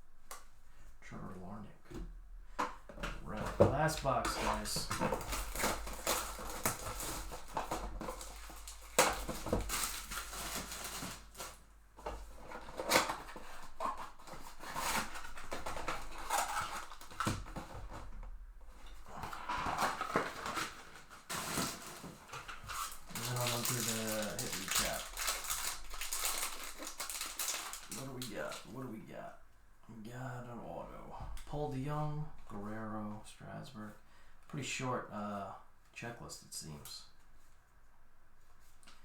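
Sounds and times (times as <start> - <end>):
foil packs tearing and crinkling: 3.2 - 28.8.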